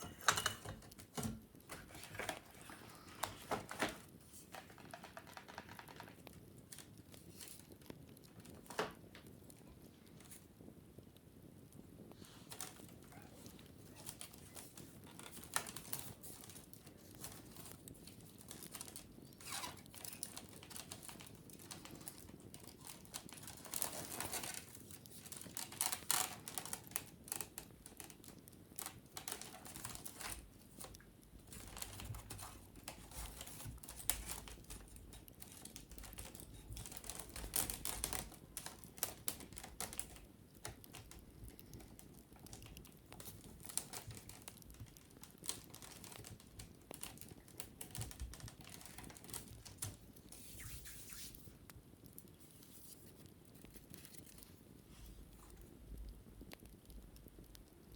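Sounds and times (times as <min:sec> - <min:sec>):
wicker basket scratched and tapped: 0:00.0 - 0:57.9.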